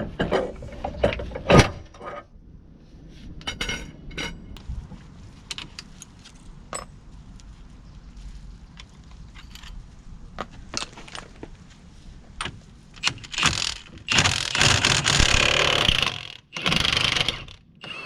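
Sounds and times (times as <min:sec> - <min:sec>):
impact wrench bursts: 0:13.0 - 0:18.0.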